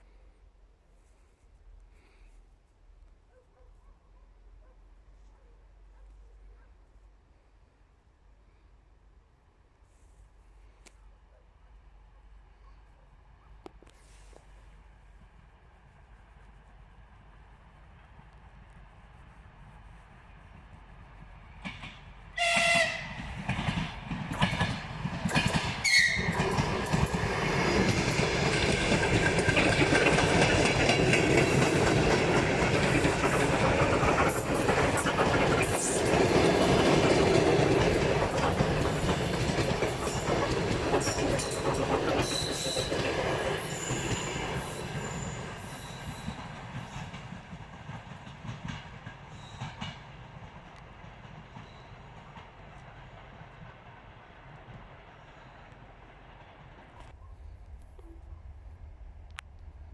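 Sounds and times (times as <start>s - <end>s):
train wheels clacking on rails: 20.6s - 57.0s
train horn blasts: 22.4s - 23.3s, 25.8s - 26.4s.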